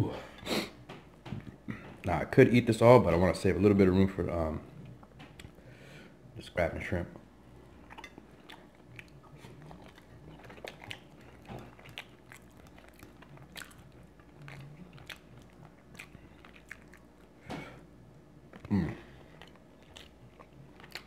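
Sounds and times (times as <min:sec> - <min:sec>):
person chewing food: 0:04.7 - 0:05.7, 0:07.2 - 0:21.0.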